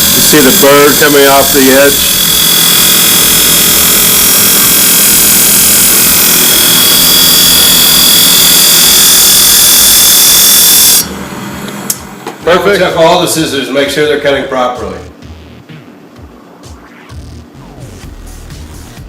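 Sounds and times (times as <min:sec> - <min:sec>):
sharpening machine grinding scissors: 0:00.0 - 0:08.7.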